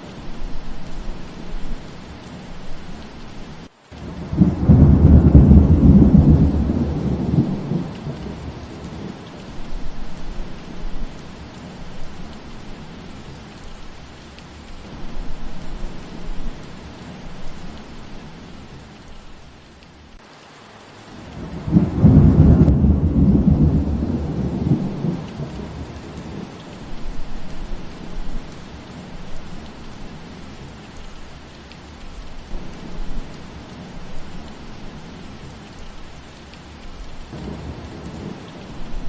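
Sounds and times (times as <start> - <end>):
rain falling: 0.0 - 39.0
thunder rumbling: 4.0 - 13.3, 21.2 - 30.7, 37.0 - 39.0.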